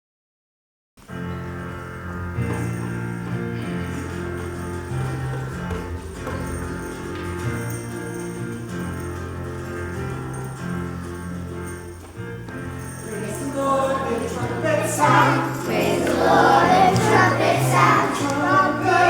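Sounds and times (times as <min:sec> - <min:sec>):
bells jingling: 0:01.6 - 0:19.0
held chords over bass line: 0:02.5 - 0:13.0.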